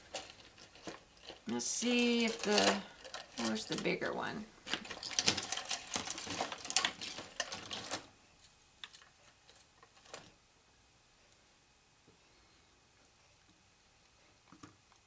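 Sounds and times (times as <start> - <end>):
small hard pieces clattering: 0.0 - 4.0, 4.6 - 8.1.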